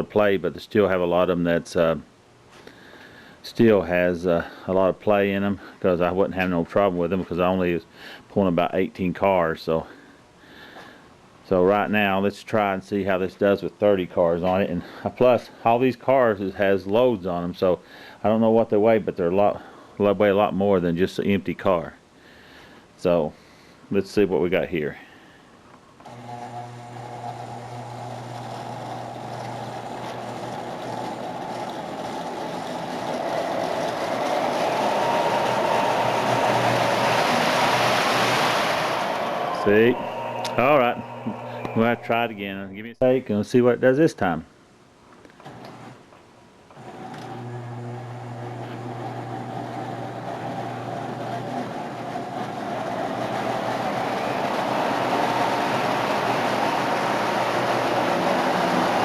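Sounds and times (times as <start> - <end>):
electric motor hum: 26.0 - 42.3, 46.8 - 59.0
model train wheels rumbling on rails: 27.9 - 42.1, 49.2 - 59.0.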